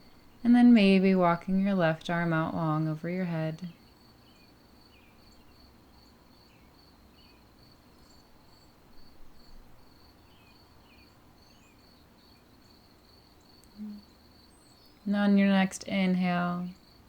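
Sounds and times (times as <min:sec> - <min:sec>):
cricket chirping: 0:03.8 - 0:15.1.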